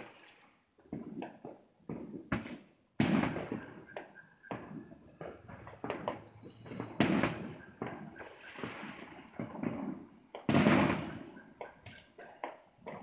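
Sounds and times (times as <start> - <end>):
fireworks and firecrackers banging: 0.0 - 13.0.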